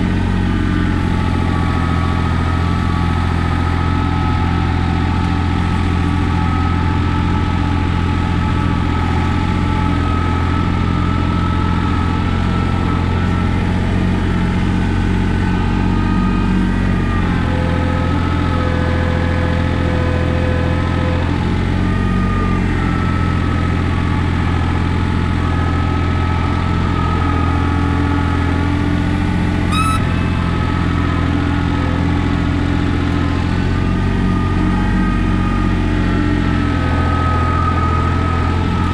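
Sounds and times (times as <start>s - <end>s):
diesel tractor engine running: 0.0s - 38.9s
short squeak: 29.6s - 32.1s.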